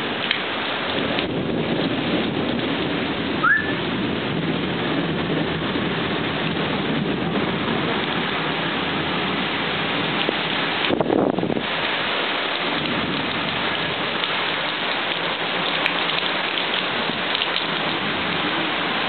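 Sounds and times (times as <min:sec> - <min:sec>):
rain falling: 0:00.0 - 0:19.0
short rising chirp: 0:03.4 - 0:03.8.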